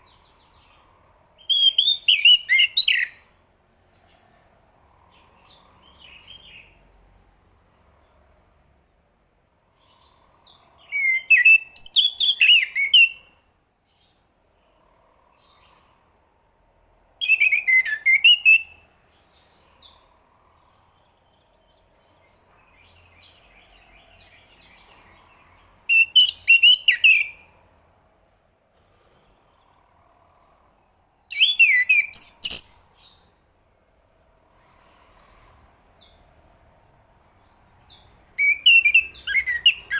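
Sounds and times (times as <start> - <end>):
quiet bird twittering: 0.0 - 39.9
thrush singing whistled phrases: 1.4 - 3.3, 10.8 - 13.3, 17.2 - 18.8, 25.9 - 27.5, 31.3 - 32.8, 38.3 - 39.9.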